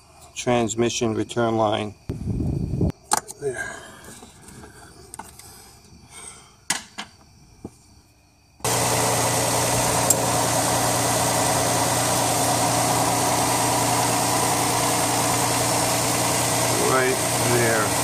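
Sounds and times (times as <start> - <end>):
car engine idling: 8.7 - 18.0.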